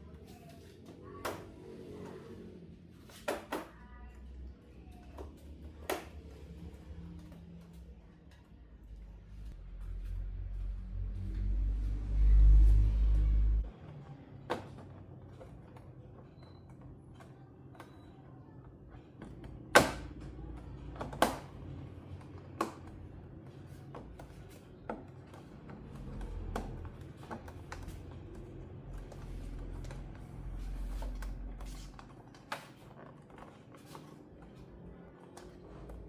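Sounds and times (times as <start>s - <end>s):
low hum: 6.2s - 13.8s.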